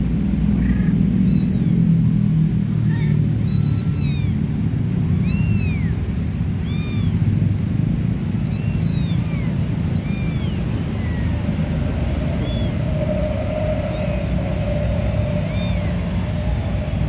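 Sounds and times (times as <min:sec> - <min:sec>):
low rumble: 0:00.0 - 0:17.0
kittens mewing: 0:00.5 - 0:02.0, 0:02.8 - 0:07.4, 0:08.3 - 0:11.7, 0:15.4 - 0:16.2.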